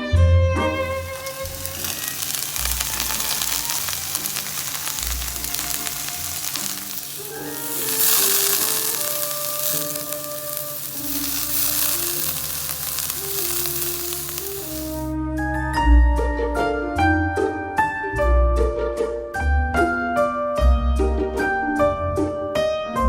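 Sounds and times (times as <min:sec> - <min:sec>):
food sizzling in a pan: 0:00.6 - 0:15.1.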